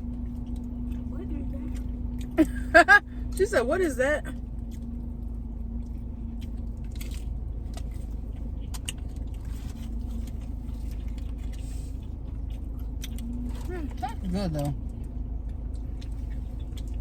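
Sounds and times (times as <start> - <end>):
people eating crunchily: 0.0 - 3.4, 4.3 - 17.0
car interior rumble: 0.0 - 17.0.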